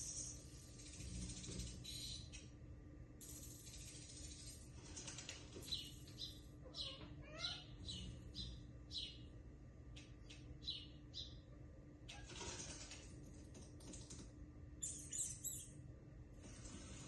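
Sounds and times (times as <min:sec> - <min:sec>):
small birds chirping: 0:00.0 - 0:02.5, 0:03.3 - 0:13.1, 0:14.8 - 0:15.8
wings fluttering: 0:03.5 - 0:06.3, 0:12.1 - 0:14.3.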